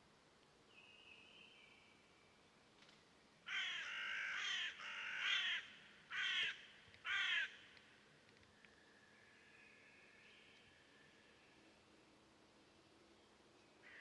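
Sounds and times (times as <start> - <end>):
crow cawing: 3.5 - 7.7.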